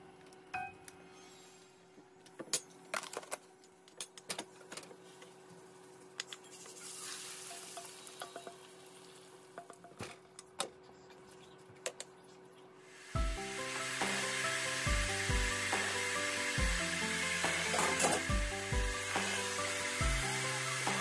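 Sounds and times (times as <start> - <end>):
batter sizzling in hot pan: 6.5 - 9.5, 12.9 - 21.0.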